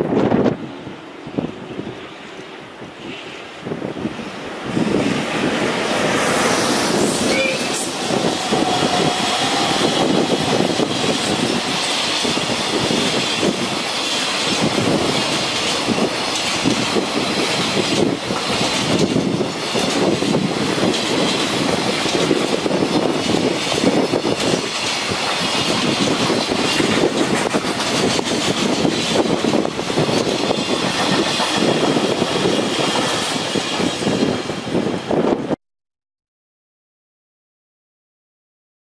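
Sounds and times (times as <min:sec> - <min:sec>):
freight train wheels clattering: 0:04.1 - 0:34.9.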